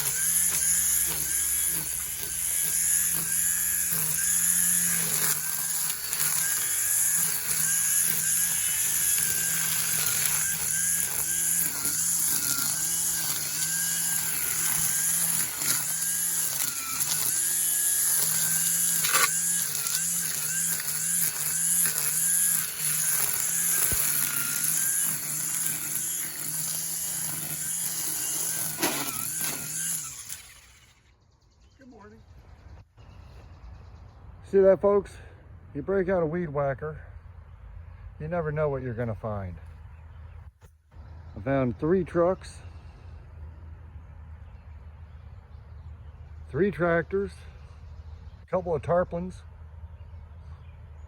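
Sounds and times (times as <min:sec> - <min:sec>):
string trimmer cutting grass: 0:00.0 - 0:31.1.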